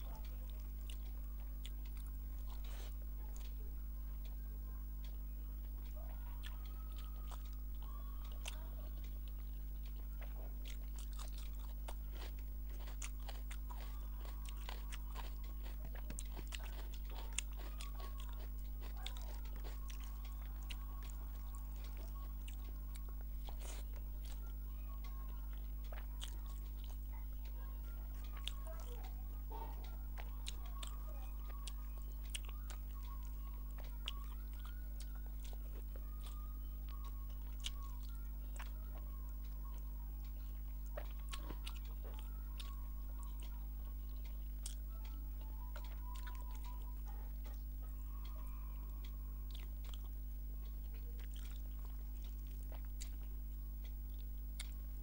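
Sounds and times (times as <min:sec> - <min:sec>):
low electrical hum: 0:00.0 - 0:55.0
person chewing with wet smacks: 0:00.0 - 0:55.0.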